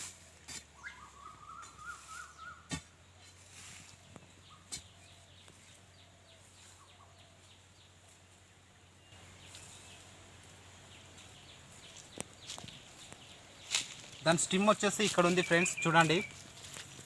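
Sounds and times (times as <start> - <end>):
faint bird chirps: 0.8 - 8.1.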